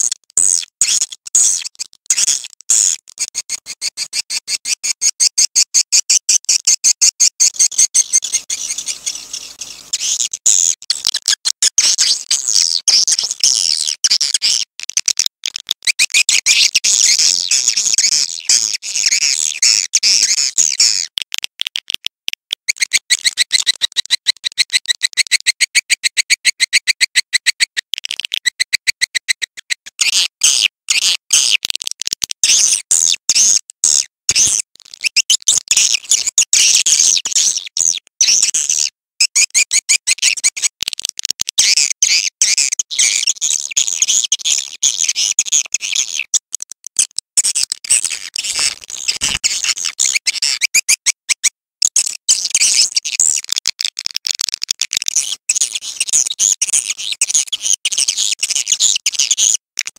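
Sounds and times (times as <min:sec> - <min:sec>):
swiftlets chirping and twittering: 0:07.5 - 0:10.2.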